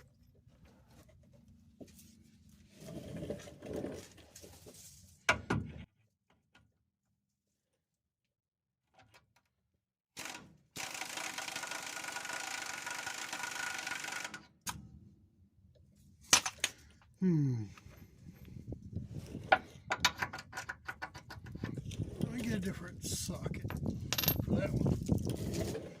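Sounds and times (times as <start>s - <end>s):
power wrench running: 10.2s - 14.5s.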